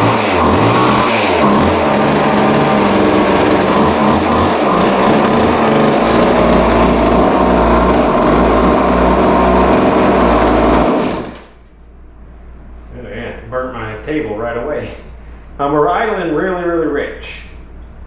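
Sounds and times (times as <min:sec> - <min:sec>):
chainsaw engine running: 0:00.0 - 0:11.5.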